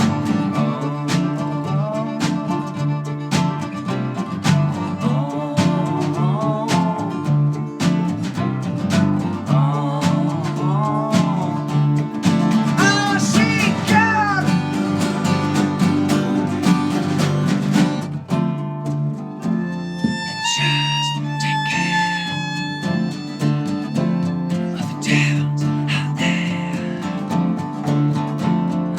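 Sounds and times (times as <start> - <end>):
guitars playing: 0.0 - 28.9
lead melody sliding between notes: 19.6 - 24.5.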